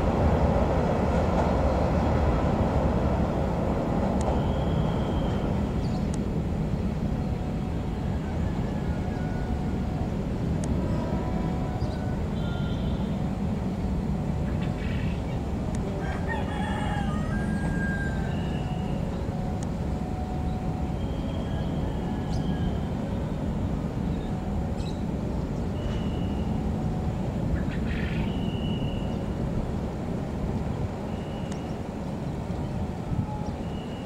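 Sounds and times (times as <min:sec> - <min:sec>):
electric train rumbling: 0:00.0 - 0:34.0.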